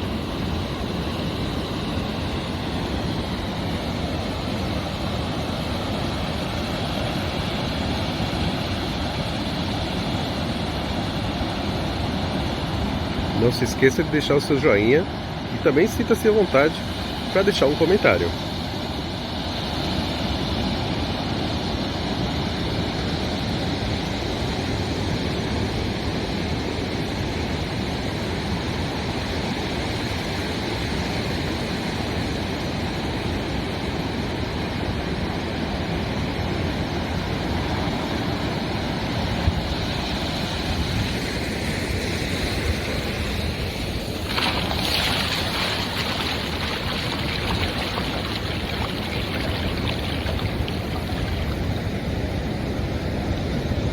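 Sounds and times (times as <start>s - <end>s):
ocean waves rushing: 13.0s - 19.1s, 39.9s - 53.9s
wave breaking loudly: 44.0s - 52.4s.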